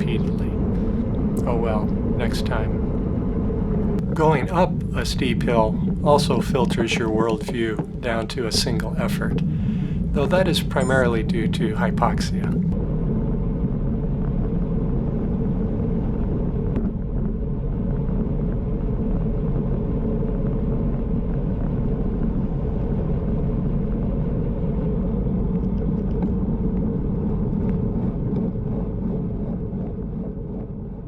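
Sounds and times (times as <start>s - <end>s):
wind and road noise: 0.0s - 12.8s.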